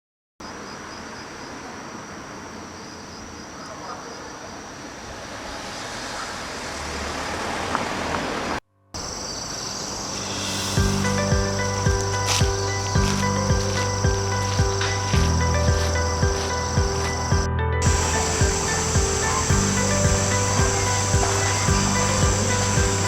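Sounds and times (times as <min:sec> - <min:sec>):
insects trilling: 0:00.4 - 0:07.4, 0:09.0 - 0:23.0
distant traffic: 0:00.4 - 0:23.0
music: 0:10.1 - 0:23.0.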